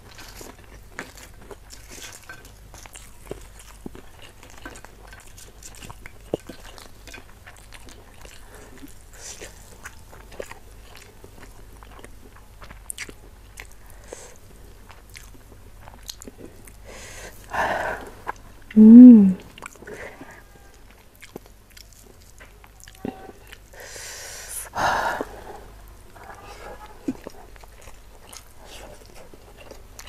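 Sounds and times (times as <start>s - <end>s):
chewing crunchy food: 0.0s - 18.8s, 19.4s - 23.8s, 25.2s - 30.0s
wet mouth sounds: 18.3s - 19.7s.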